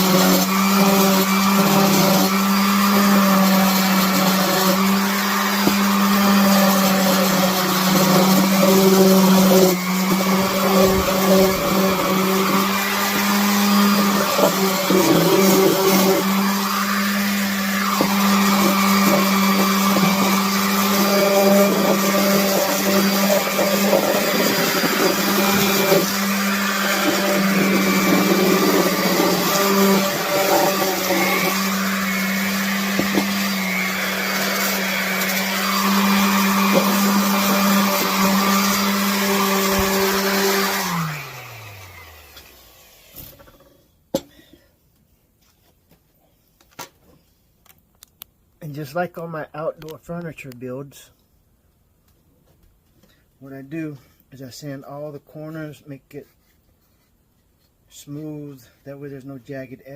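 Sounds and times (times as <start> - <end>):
electric sander on wood: 0.0 - 43.7.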